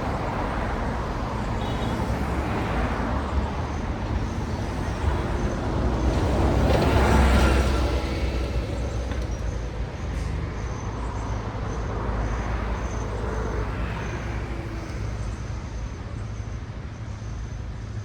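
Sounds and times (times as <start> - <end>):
vehicle passing by: 0.0 - 9.2
low traffic rumble: 0.0 - 18.0.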